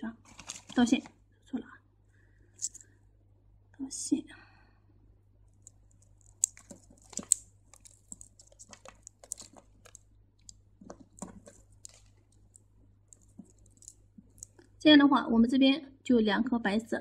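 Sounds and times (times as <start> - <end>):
thread rustling: 0.2 - 1.1, 2.5 - 2.9, 5.5 - 14.7
beads clicking together: 2.6 - 2.9, 5.6 - 14.7.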